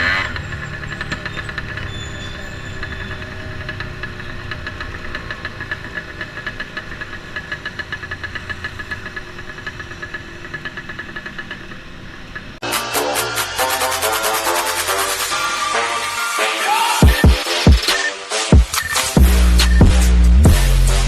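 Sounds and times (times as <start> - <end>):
motorcycle engine ticking: 0.0 - 12.6.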